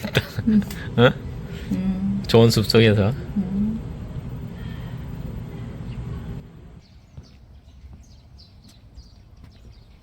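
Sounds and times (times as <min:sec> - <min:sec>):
low background rumble: 0:00.0 - 0:07.8
small birds chirping: 0:04.5 - 0:10.0.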